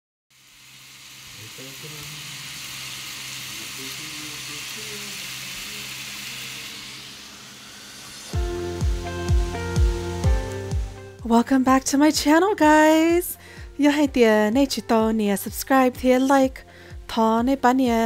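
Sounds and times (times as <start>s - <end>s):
food sizzling in a pan: 0.3s - 18.0s
music with thumping beat: 8.3s - 18.0s.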